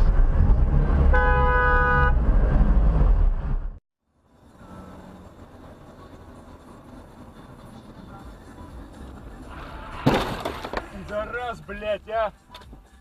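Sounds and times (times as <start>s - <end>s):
vehicle and road noise: 0.0s - 13.0s
car horn: 1.0s - 2.4s, 4.4s - 5.2s.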